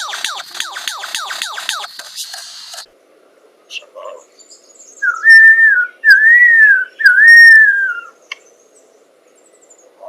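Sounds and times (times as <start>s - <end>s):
lyrebird whistling: 5.0s - 8.2s.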